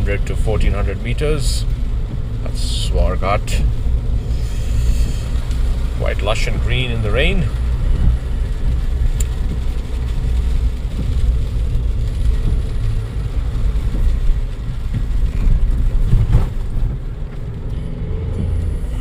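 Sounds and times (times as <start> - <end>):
car cabin road rumble: 0.0 - 19.0
car jolting on bump: 13.8 - 17.0.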